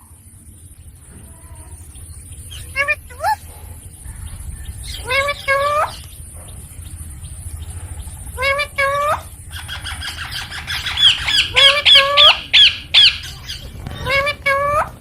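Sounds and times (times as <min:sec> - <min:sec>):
parakeet squawking: 0:08.4 - 0:15.0.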